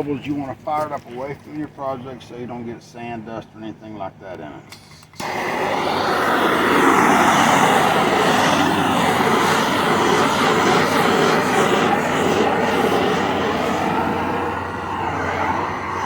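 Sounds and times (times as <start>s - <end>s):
torch flame rushing: 5.2s - 16.0s.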